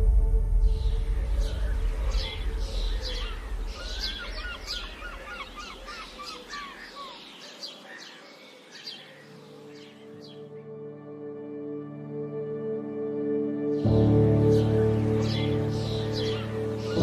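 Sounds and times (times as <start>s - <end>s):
low rumble: 0.0s - 5.3s
small birds singing and chirping: 0.6s - 10.9s, 13.7s - 17.0s.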